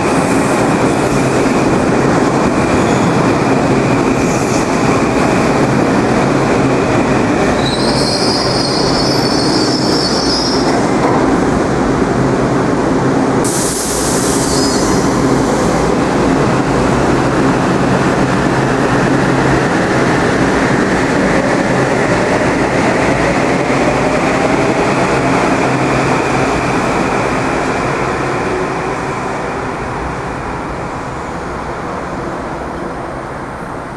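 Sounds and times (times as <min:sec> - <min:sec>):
train wheels rumbling on rail: 0:00.0 - 0:33.9.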